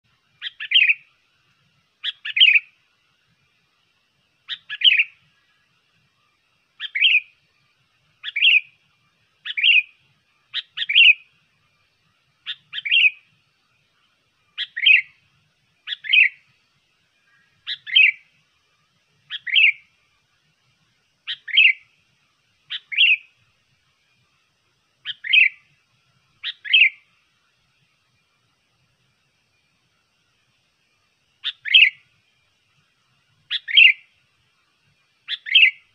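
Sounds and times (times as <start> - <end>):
bulbul calling: 0.4 - 1.1, 2.0 - 2.7, 4.5 - 5.2, 6.8 - 7.4, 8.2 - 8.8, 9.4 - 11.3, 12.4 - 13.2, 14.6 - 15.2, 15.8 - 16.4, 17.3 - 18.3, 19.3 - 19.9, 21.2 - 21.8, 22.7 - 23.3, 25.0 - 25.7, 26.4 - 27.1, 31.4 - 32.0, 33.5 - 34.1, 35.3 - 35.9.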